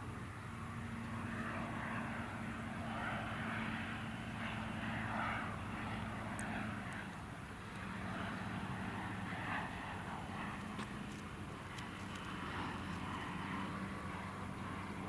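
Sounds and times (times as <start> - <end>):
helicopter turbines and rotor hum: 0.0 - 15.0.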